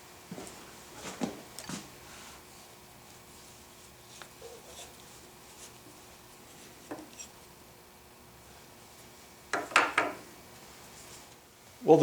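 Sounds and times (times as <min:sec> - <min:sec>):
low room noise: 0:00.0 - 0:12.0
hardware clicks and knocks: 0:09.5 - 0:10.2.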